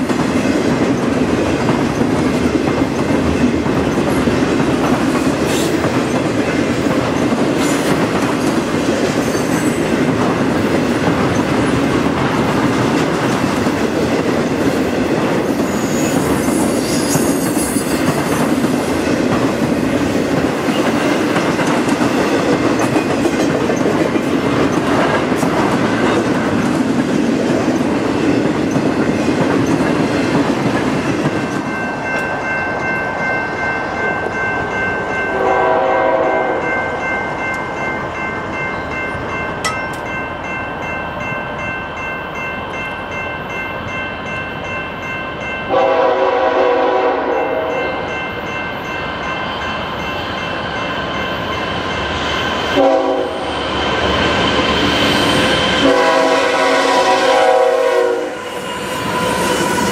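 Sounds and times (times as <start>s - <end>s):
freight train rumbling on rails: 0.0s - 59.9s
train horn note: 35.3s - 36.7s, 45.7s - 48.0s, 52.7s - 53.5s, 55.6s - 59.9s
steady high ringing tones: 47.4s - 52.8s.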